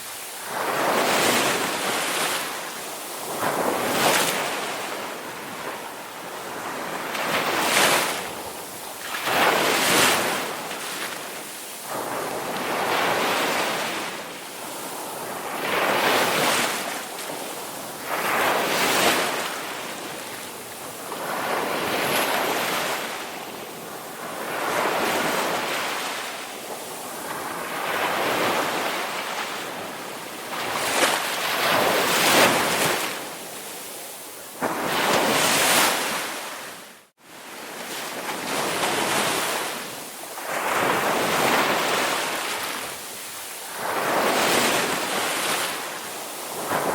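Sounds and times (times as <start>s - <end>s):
ocean waves breaking on shore: 0.0s - 46.9s.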